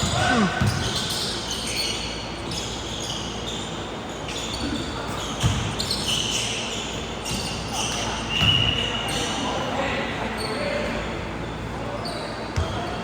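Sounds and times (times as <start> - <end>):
gym noise: 0.0 - 0.9.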